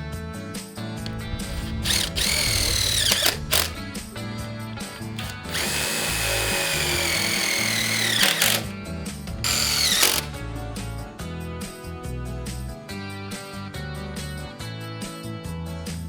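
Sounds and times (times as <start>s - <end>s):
power drill whining: 1.0s - 10.8s.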